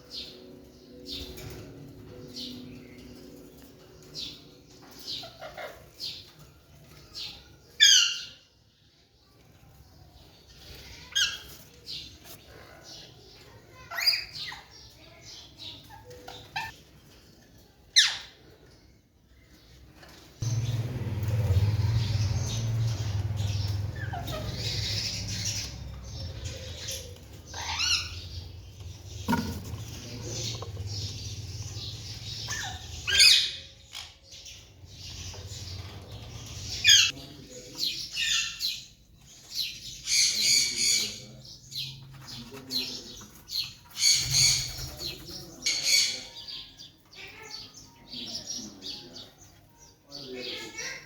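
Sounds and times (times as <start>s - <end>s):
parrot chirp: 22.3s - 28.5s, 31.3s - 34.2s
parrot chirping: 31.3s - 34.2s.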